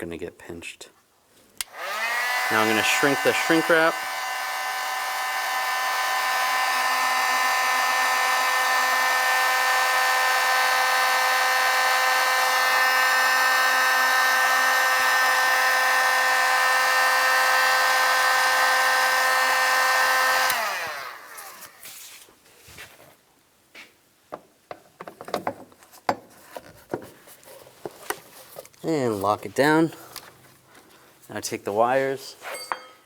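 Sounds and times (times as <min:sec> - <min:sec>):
heat gun fan whine: 0:01.6 - 0:21.8.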